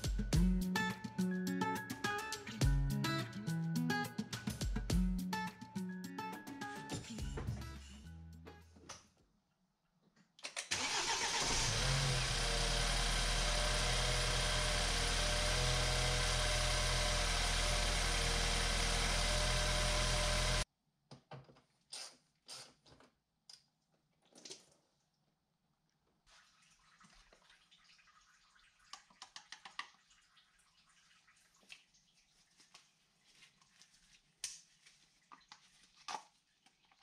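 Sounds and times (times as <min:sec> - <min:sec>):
car engine starting and idling: 0:10.7 - 0:20.6.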